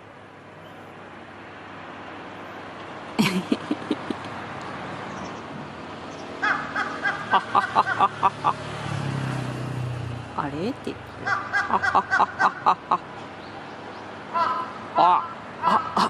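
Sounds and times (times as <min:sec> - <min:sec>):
traffic hum: 0:00.0 - 0:16.0
crow cawing: 0:06.4 - 0:08.6, 0:11.2 - 0:13.0, 0:14.3 - 0:16.0.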